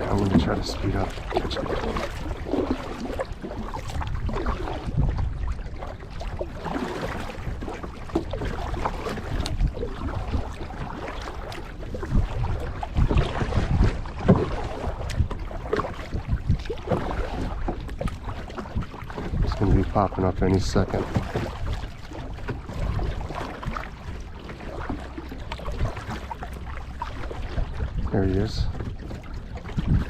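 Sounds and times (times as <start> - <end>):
kayak paddle strokes in water: 0.0 - 30.0
water splashing against hull: 0.0 - 30.0
wind buffeting microphone: 0.0 - 30.0.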